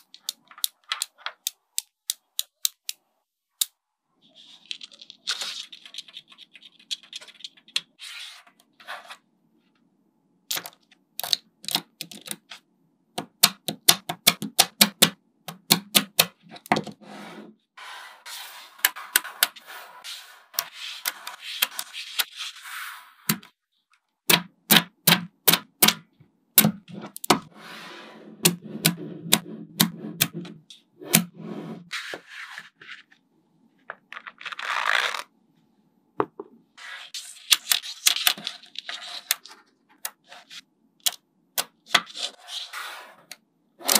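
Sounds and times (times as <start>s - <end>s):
balls scraping across a table: 17.0s - 23.3s, 26.9s - 33.1s, 42.2s - 43.3s.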